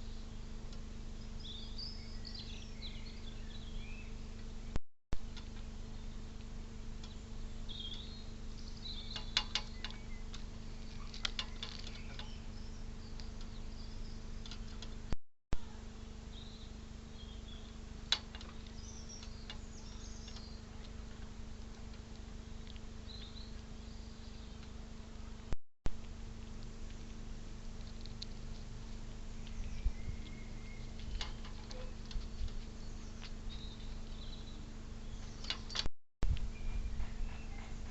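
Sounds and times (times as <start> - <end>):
steady low hum: 0.0 - 37.9
high bird chirps: 7.1 - 14.5.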